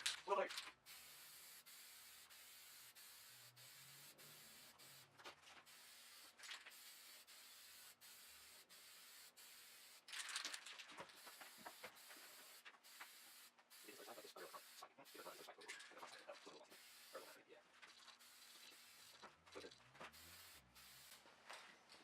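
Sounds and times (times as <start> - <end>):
aerosol can spraying hiss: 0.8 - 10.1, 11.1 - 15.6, 16.6 - 17.4, 18.1 - 19.2, 20.1 - 21.2.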